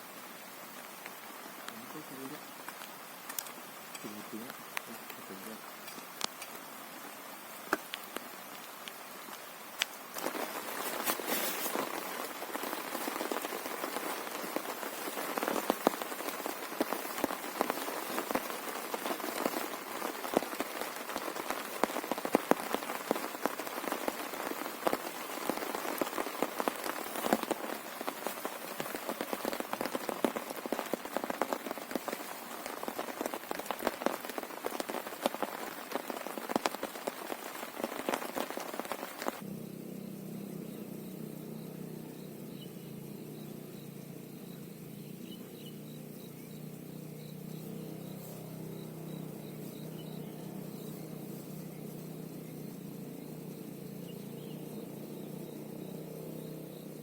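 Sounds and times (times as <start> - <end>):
heavy rain falling: 0.0 - 57.0
sharp raindrop hits: 7.6 - 39.4, 40.4 - 57.0.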